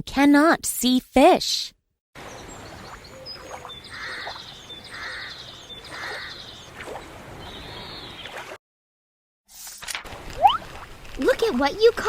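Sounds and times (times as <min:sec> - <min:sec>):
rising and falling bird call: 0:02.3 - 0:08.4
bird call with fast trill: 0:02.4 - 0:06.7.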